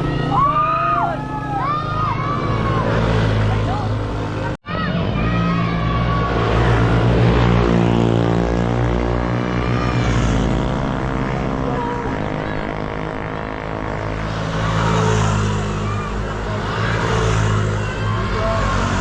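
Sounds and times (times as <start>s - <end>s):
motorcycle engine running: 6.8s - 19.0s.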